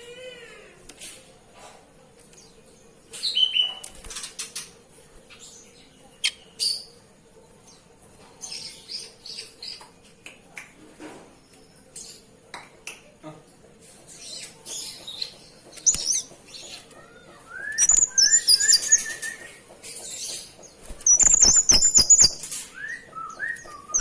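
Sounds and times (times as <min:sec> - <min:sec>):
bird chirping and whistling: 0:17.5 - 0:19.6, 0:21.0 - 0:24.0
wings flapping: 0:20.8 - 0:22.8.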